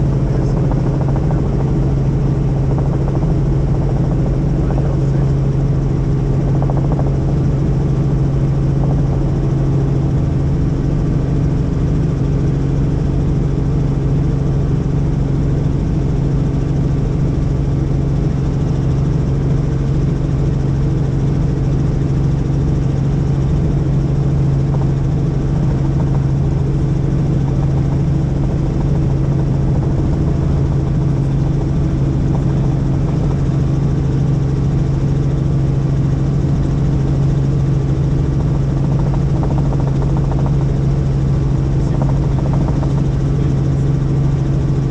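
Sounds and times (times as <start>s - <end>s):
helicopter engine and rotor: 0.0s - 44.9s.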